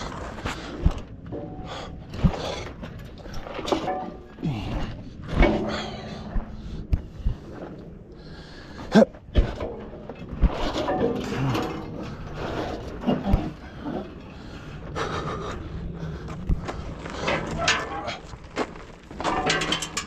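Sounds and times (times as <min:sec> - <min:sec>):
metal knocks and clanks: 0:00.8 - 0:07.4, 0:09.2 - 0:14.6, 0:16.5 - 0:20.0.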